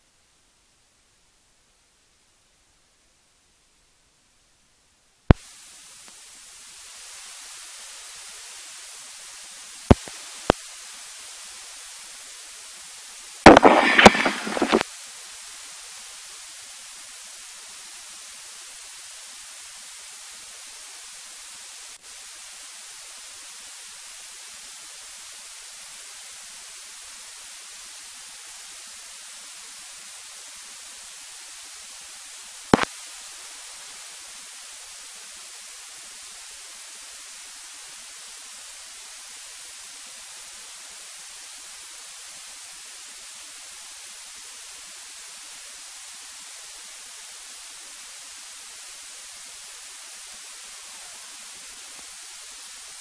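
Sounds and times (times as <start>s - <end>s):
static hiss: 0.0s - 53.0s
sharp click: 13.5s - 14.8s.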